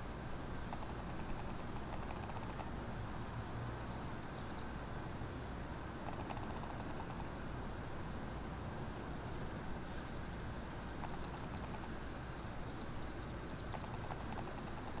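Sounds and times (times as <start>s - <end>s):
small bird twittering: 0.0s - 2.6s, 3.2s - 4.7s, 8.7s - 15.0s.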